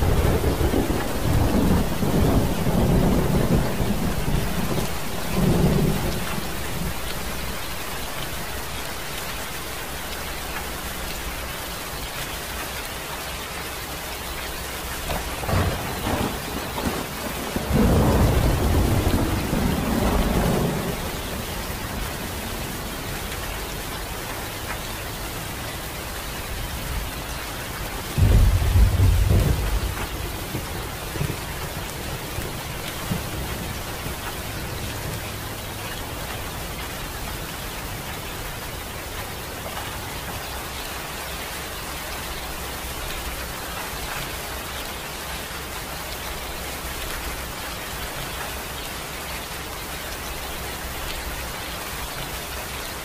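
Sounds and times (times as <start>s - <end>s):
low rumble of thunder: 0.0s - 9.4s, 14.9s - 24.6s, 25.2s - 40.5s
steady rain falling: 0.0s - 53.0s.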